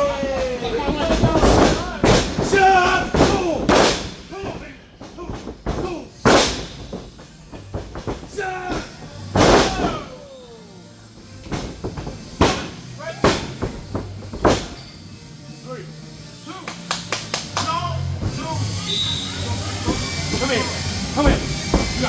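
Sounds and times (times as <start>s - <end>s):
people shouting: 0.0s - 6.1s, 8.3s - 10.6s
bodies slamming on wrestling ring: 0.9s - 10.2s, 11.4s - 14.8s, 21.2s - 22.0s.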